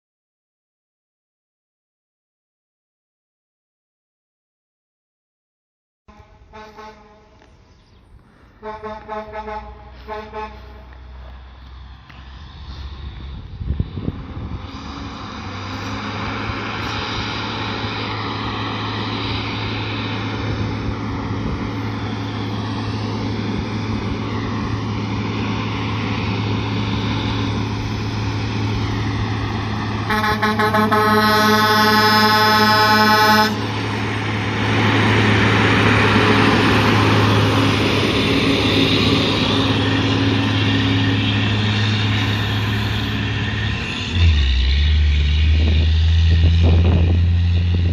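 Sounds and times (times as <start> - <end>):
air horn blast: 6.1 - 7.4, 8.6 - 10.9, 30.1 - 33.8
truck diesel engine running: 6.3 - 47.9.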